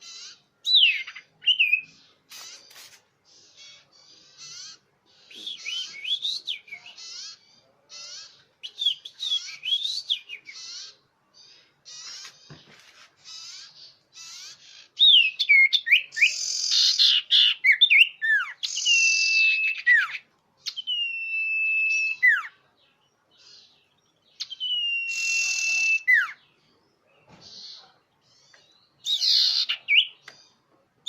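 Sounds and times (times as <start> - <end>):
bird rapid high chattering: 0.0 - 7.4
bird long level whistles: 4.6 - 7.4, 8.6 - 10.9, 15.0 - 22.5, 24.4 - 26.4.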